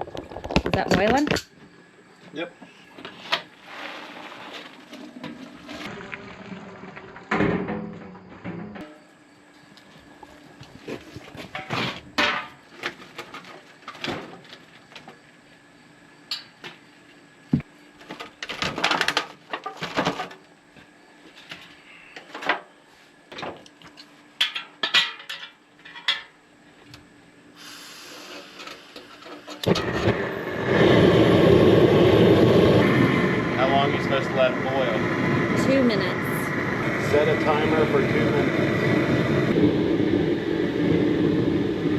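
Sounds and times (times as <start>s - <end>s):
loud steady rushing noise: 29.8s - 41.9s.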